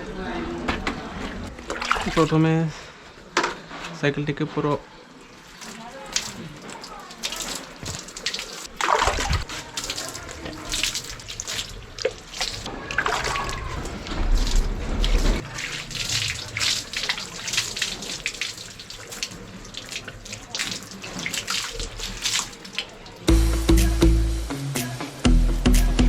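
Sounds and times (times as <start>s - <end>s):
water splashing from a mug: 1.6s - 2.4s, 5.3s - 23.3s.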